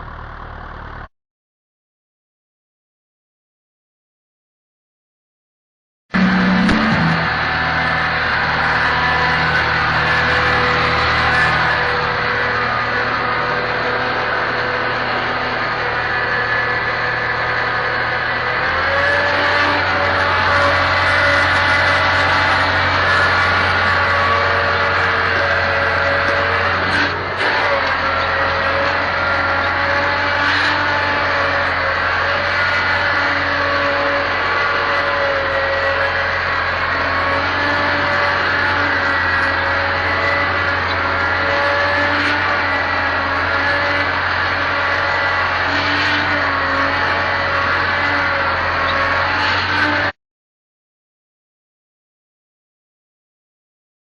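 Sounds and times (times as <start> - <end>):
tractor diesel engine running: 0.0 - 1.1, 6.1 - 49.3.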